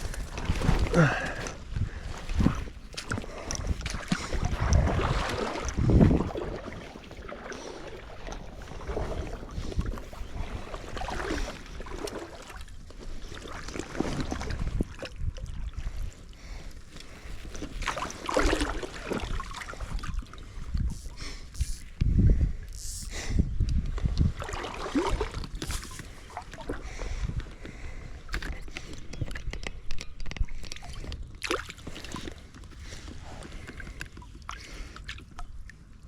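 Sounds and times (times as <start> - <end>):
river water splashing: 0.0 - 15.8, 17.1 - 20.4, 24.4 - 27.0
wind rumble on microphone: 0.0 - 34.5.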